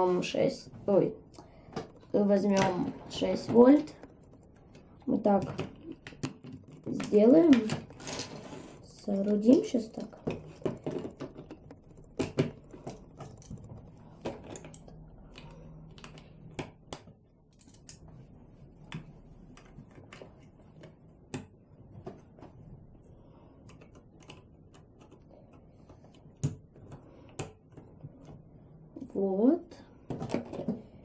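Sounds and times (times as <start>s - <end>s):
plastic parts clicking: 3.4s - 18.1s, 23.6s - 28.4s, 30.0s - 31.0s.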